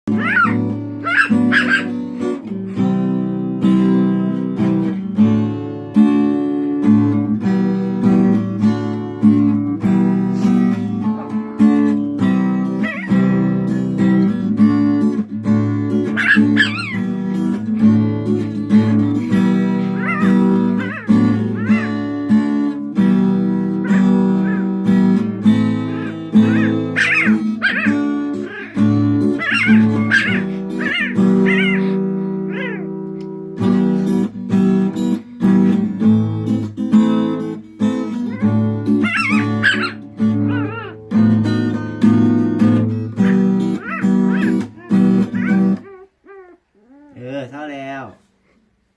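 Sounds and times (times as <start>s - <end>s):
cat meowing: 0.1s - 1.9s, 12.8s - 13.2s, 16.2s - 17.1s, 20.0s - 22.1s, 23.8s - 24.7s, 25.9s - 32.9s, 38.3s - 41.0s, 43.2s - 47.2s
acoustic guitar chords: 0.1s - 45.8s.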